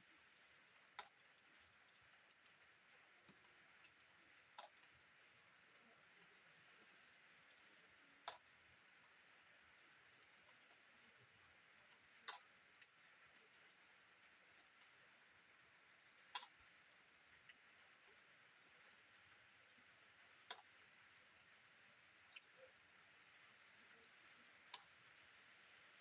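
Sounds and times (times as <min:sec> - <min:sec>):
faint rain hiss: 0:00.0 - 0:26.0
water drops dripping: 0:00.3 - 0:06.5, 0:08.2 - 0:09.2, 0:11.9 - 0:13.0, 0:20.4 - 0:20.8, 0:21.6 - 0:26.0.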